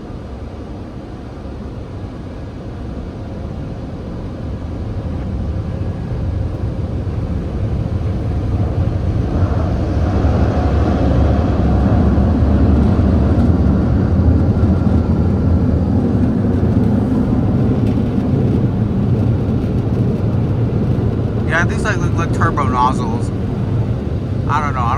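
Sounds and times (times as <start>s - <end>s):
dryer blowers rushing air: 5.3s - 24.9s.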